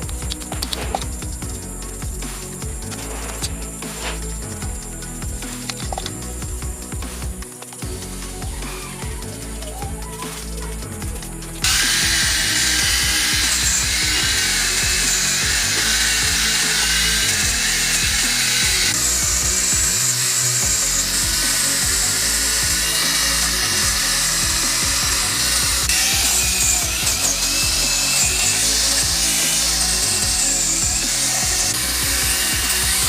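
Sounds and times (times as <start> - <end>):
background music: 0.0 - 33.0
power tool high hiss: 11.6 - 33.0.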